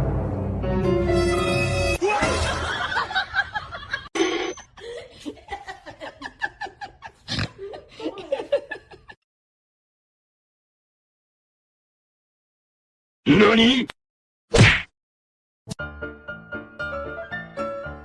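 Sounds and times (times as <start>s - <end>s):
person laughing: 2.0s - 4.1s, 4.7s - 9.2s.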